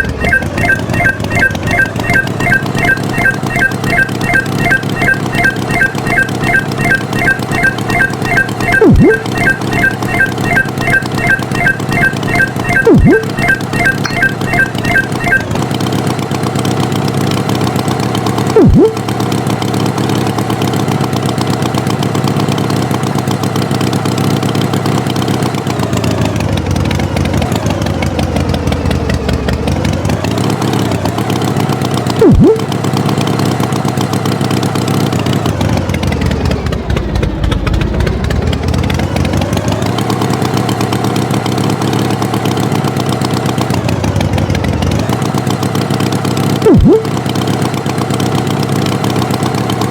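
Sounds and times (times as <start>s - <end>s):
loud blip sliding down in pitch: 0.0s - 15.5s, 18.6s - 19.0s, 32.2s - 32.7s, 46.6s - 47.1s.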